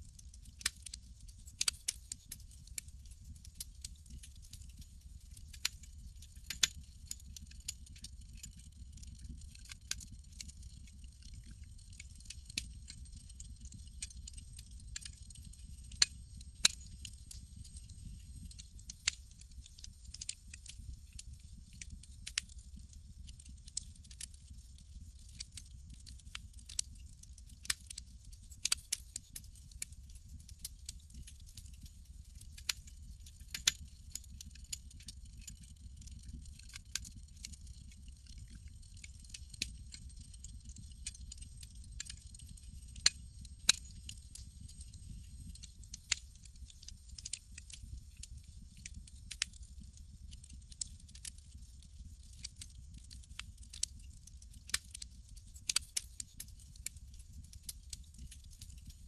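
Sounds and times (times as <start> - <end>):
campfire crackling: 23.3 - 28.9, 34.4 - 49.6, 50.4 - 53.9, 54.5 - 56.0.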